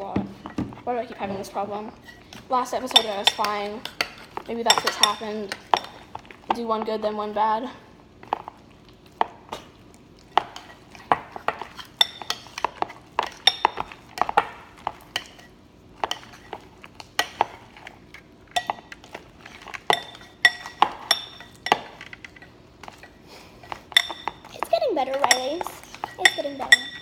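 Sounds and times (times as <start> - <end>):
spoon stirring slime: 0.0 - 27.0
spoon clinking on bowl: 19.8 - 22.1, 23.9 - 27.0.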